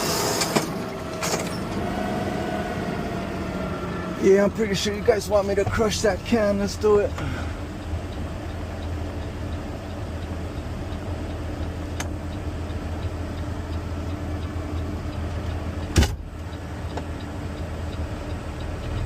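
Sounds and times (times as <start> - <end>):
garbage truck engine and hydraulics: 0.0 - 6.0.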